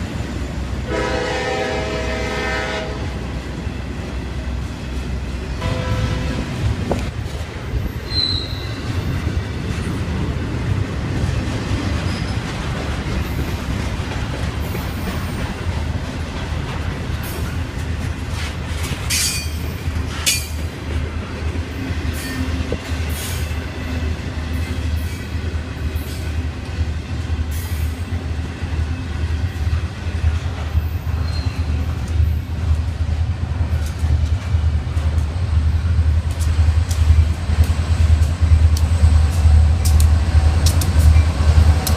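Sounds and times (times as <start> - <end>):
train wheels rumbling on rail: 0.0 - 41.9
high wheel squeal: 8.0 - 9.0, 31.1 - 31.9.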